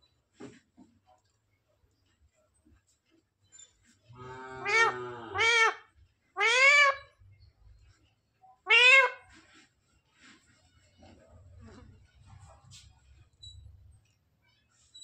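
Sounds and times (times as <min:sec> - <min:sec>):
parrot meow-like calls: 0:04.5 - 0:05.8, 0:06.4 - 0:07.1, 0:08.7 - 0:09.2.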